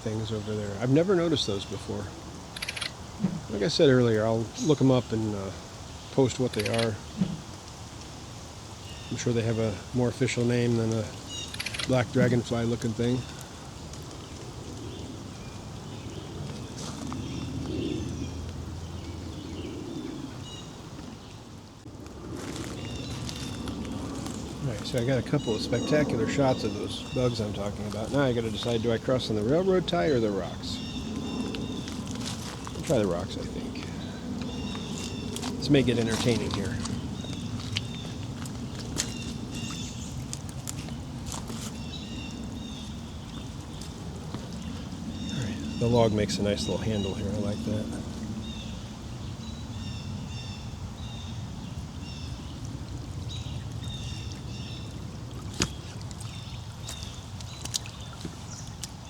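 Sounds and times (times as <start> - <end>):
steady low rumble: 21.8 - 50.3
footsteps on stepping stones: 22.4 - 24.9, 31.6 - 33.0, 34.7 - 41.8.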